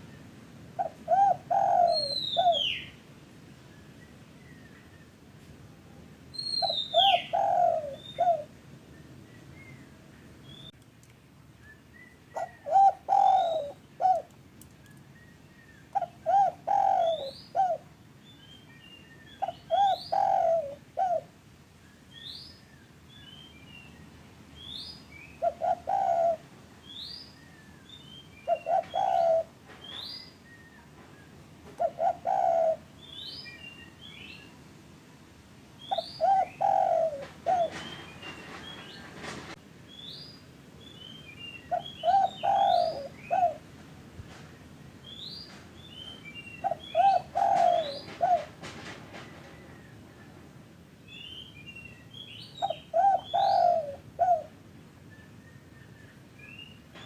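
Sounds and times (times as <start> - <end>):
small birds chirping: 0.0 - 3.0, 6.4 - 10.9, 35.8 - 39.1, 39.9 - 43.6, 44.6 - 48.5, 51.0 - 54.5
dove cooing: 0.8 - 2.9, 6.6 - 8.5, 12.3 - 14.3, 15.9 - 17.9, 19.4 - 21.3, 25.4 - 26.5, 28.4 - 30.0, 31.7 - 32.9, 35.9 - 38.1, 41.7 - 43.7, 46.6 - 48.6, 52.6 - 54.6.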